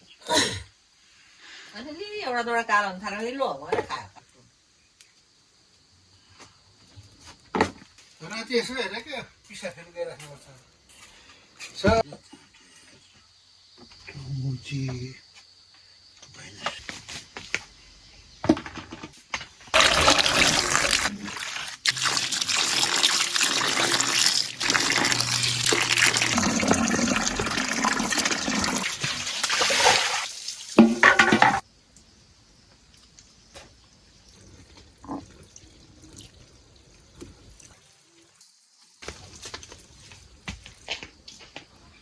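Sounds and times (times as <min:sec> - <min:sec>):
water running and splashing: 0:19.6 - 0:31.6.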